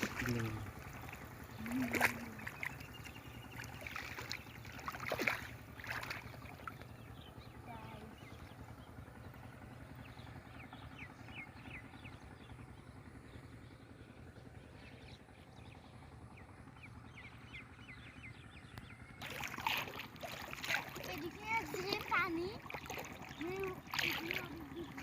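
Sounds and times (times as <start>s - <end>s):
small birds chirping: 0.0s - 13.9s, 14.6s - 25.0s
faint low rumble: 0.0s - 25.0s.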